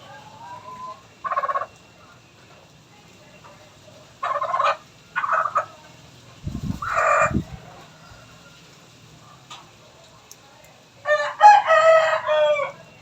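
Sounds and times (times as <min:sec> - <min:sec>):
chicken squawking: 0:06.5 - 0:07.7.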